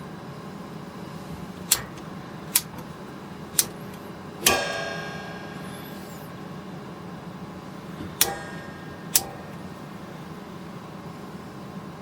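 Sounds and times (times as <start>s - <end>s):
steady low hum: 0.0s - 12.0s
sharp metallic clicks: 1.7s - 2.9s, 3.5s - 6.3s, 8.2s - 9.6s.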